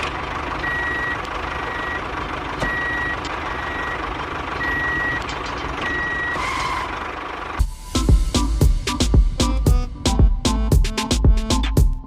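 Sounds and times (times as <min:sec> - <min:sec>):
reversing beeper: 0:00.6 - 0:06.9.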